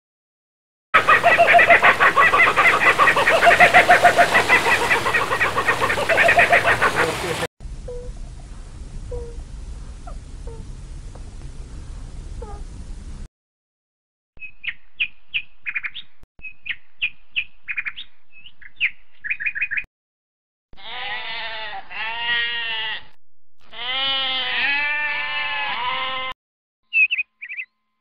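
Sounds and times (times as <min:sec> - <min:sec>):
bird chirping: 0:14.4 - 0:19.8, 0:26.9 - 0:27.9
sheep bleating: 0:20.8 - 0:26.4.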